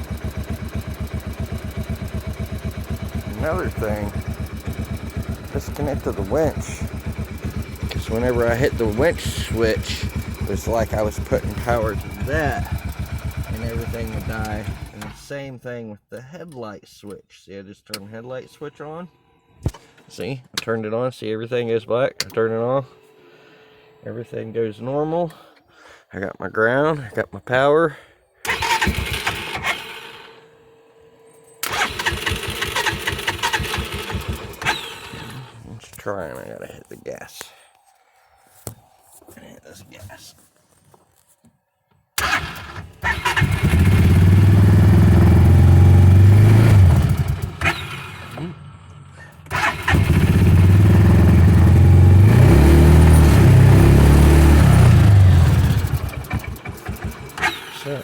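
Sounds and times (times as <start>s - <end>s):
engine cranking by starter motor: 0.0s - 15.4s, 28.4s - 35.7s, 42.2s - 58.0s.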